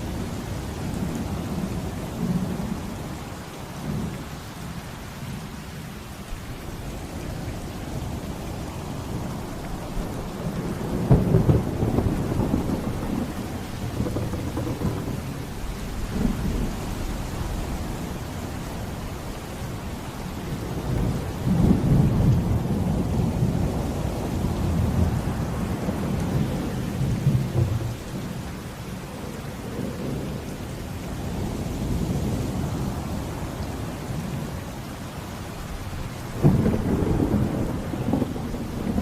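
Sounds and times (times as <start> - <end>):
heavy rain: 0.0 - 39.0
deep rolling thunder: 9.2 - 18.1, 20.6 - 28.8, 35.8 - 39.0.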